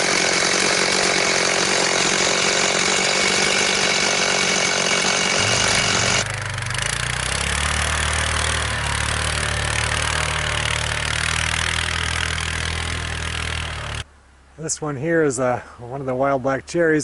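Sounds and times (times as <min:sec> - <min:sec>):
chainsaw cutting wood: 0:00.0 - 0:14.0
low engine drone: 0:04.7 - 0:14.6.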